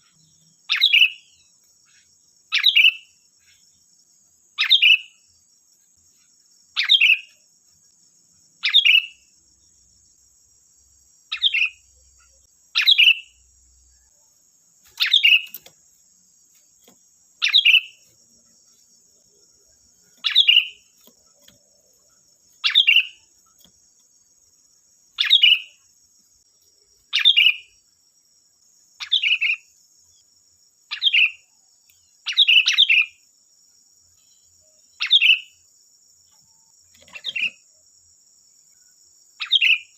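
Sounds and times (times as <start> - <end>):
bulbul calling: 0.0 - 3.6, 4.6 - 5.2, 6.8 - 7.4, 8.6 - 9.3, 11.3 - 13.4, 14.9 - 15.8, 17.4 - 18.1, 20.1 - 22.0, 22.6 - 23.3, 25.2 - 25.8, 27.1 - 27.7, 29.0 - 29.7, 32.2 - 33.2, 35.0 - 35.5.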